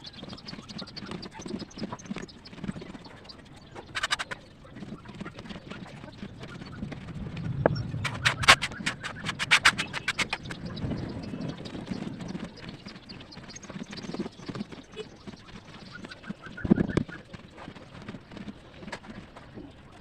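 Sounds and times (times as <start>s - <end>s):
rapid crisp crunches: 0.3s - 20.0s
low rumble: 6.3s - 12.2s.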